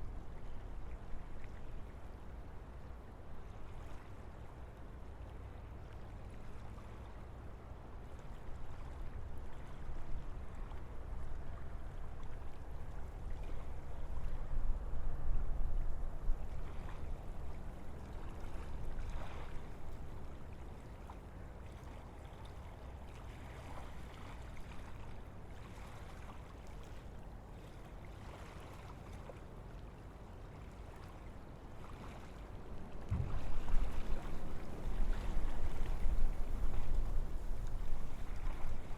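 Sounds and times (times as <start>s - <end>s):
wind rumbling through forest: 32.9s - 38.9s.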